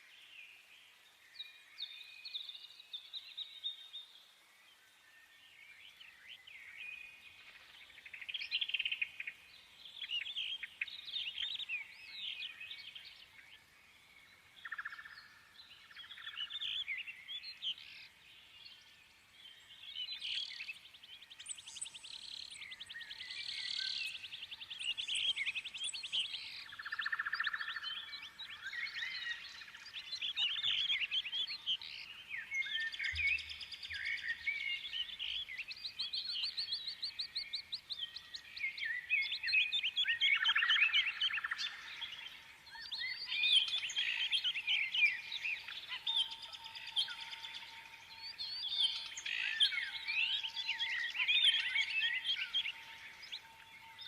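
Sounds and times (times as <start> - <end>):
birds singing and chirping: 0.0 - 54.0.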